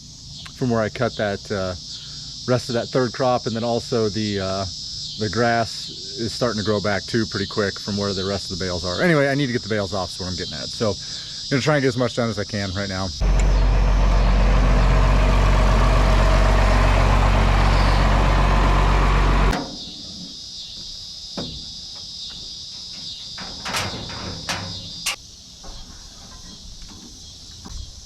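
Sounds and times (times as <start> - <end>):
crickets chirping: 0.0 - 18.8, 19.5 - 28.0
tractor engine idling: 13.2 - 20.4, 21.4 - 25.2
clicks and knocks: 21.4 - 27.1.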